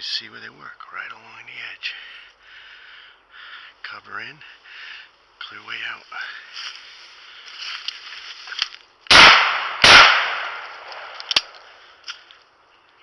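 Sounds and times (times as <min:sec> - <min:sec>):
shotgun shots with echo: 0:09.1 - 0:11.2.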